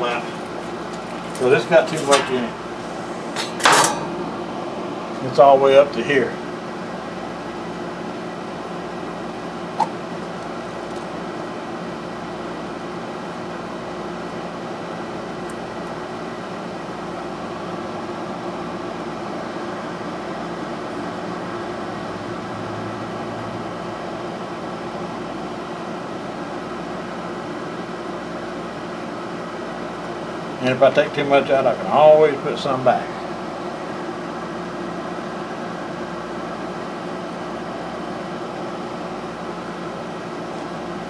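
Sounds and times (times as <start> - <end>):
fan humming: 0.0 - 6.4, 9.2 - 17.2.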